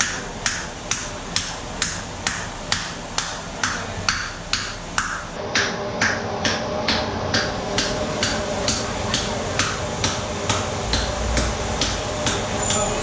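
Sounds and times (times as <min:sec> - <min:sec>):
beating starch paste by hand: 0:00.0 - 0:13.0.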